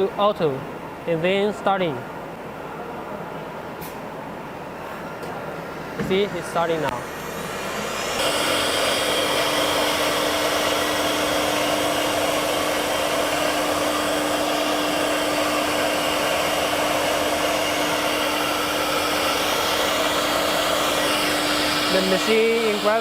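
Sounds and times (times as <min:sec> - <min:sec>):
spindle whine: 0:05.7 - 0:23.0.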